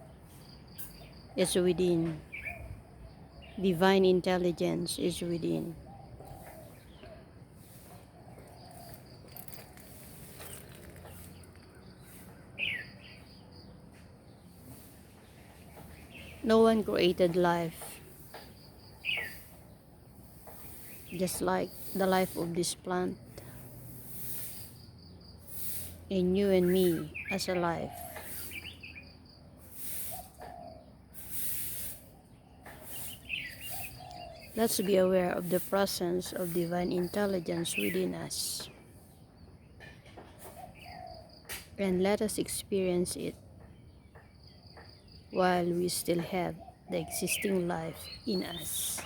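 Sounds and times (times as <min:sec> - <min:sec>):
short bird chirps: 0:06.4 - 0:13.7, 0:18.1 - 0:19.8, 0:28.0 - 0:30.5, 0:31.1 - 0:34.6.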